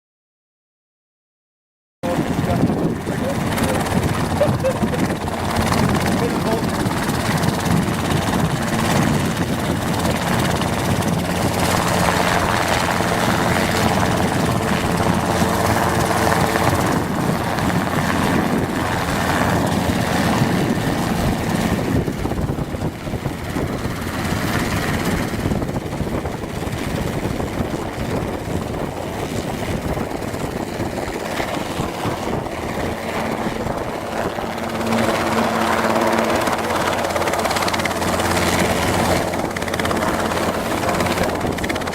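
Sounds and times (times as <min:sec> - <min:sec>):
helicopter engine and rotor: 0:02.0 - 0:41.9.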